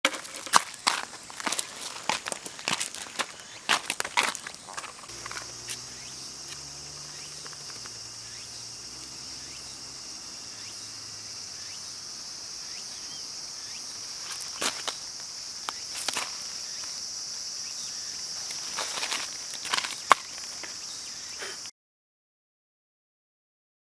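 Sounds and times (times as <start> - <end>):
insects chirring: 0.1 - 21.7.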